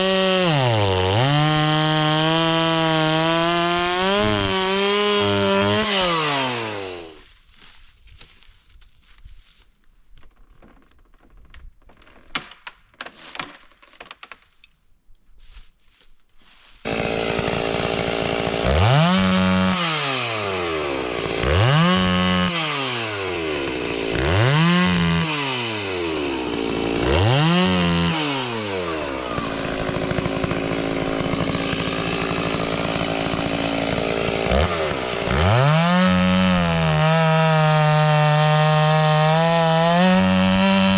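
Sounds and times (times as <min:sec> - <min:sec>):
chainsaw revving: 0:00.0 - 0:07.2, 0:16.9 - 0:40.9.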